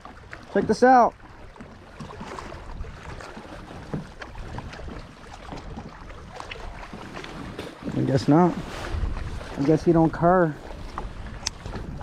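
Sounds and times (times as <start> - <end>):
water lapping against kayak hull: 0.0 - 12.0
wind on microphone: 2.0 - 12.0.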